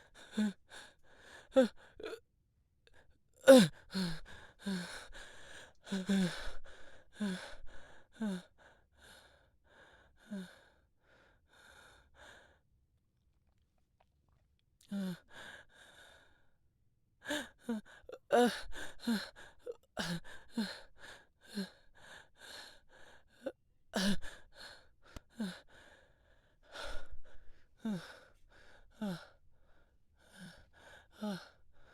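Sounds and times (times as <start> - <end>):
person panting heavily: 24.0 - 31.9.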